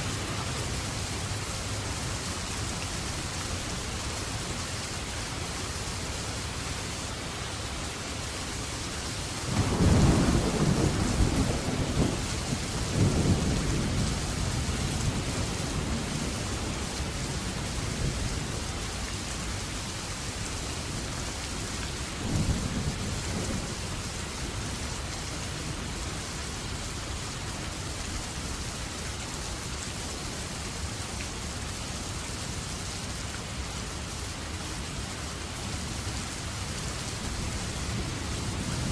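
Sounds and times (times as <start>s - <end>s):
steady rain falling: 0.0s - 38.9s
rolling thunder: 9.5s - 16.4s.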